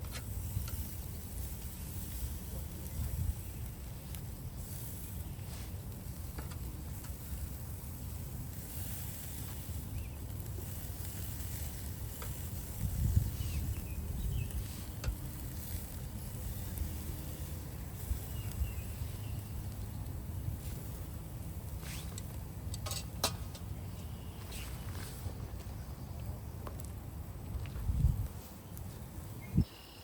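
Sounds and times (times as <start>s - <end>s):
meat sizzling on a grill: 0.0s - 23.2s.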